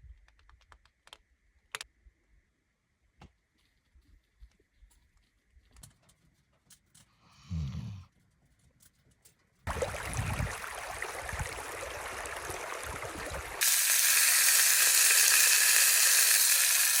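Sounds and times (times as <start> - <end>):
food sizzling in a frying pan: 13.6 - 17.0.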